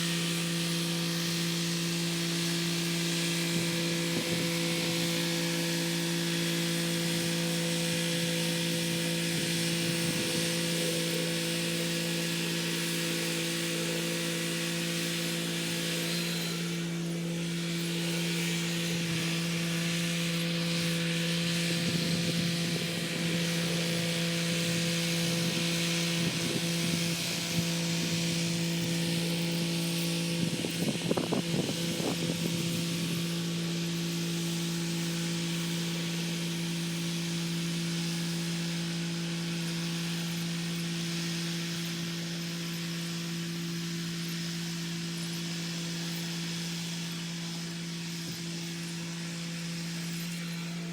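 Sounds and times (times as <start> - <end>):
rotary tiller churning soil: 0.0 - 50.9
tractor diesel engine running: 18.9 - 33.4.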